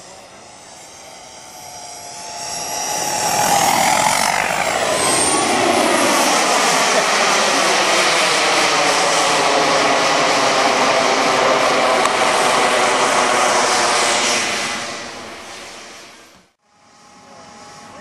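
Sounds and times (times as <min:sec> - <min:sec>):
model airplane engine flying past: 0:00.0 - 0:18.0.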